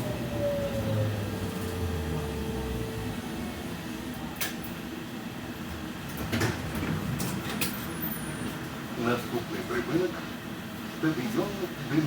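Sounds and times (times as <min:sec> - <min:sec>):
tram running gear hum: 0:00.0 - 0:09.0.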